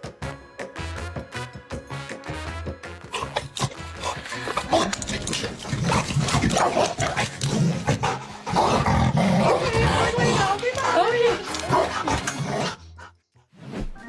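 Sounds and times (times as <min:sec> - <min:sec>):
dog vocalising: 0:03.1 - 0:13.0.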